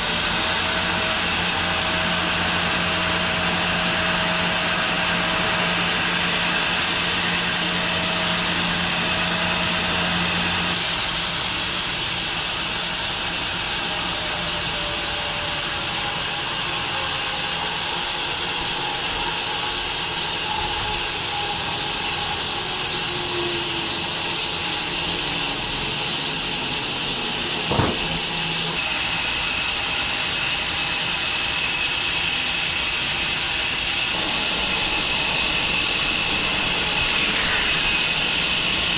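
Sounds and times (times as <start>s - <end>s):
bandsaw mill cutting log: 0.0s - 38.9s
sharp knock: 27.7s - 28.2s.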